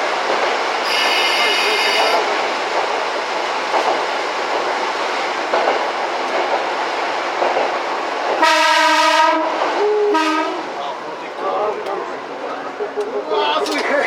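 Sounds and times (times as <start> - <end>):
train rumbling on rails: 0.0 - 14.0
train horn: 0.8 - 2.3, 8.4 - 10.7.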